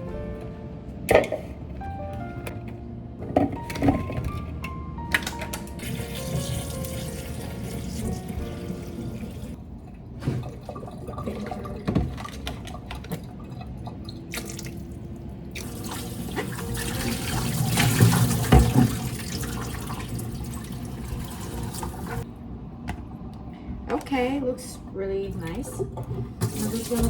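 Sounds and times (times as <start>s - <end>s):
tap running into sink: 5.2s - 9.3s, 15.6s - 22.2s.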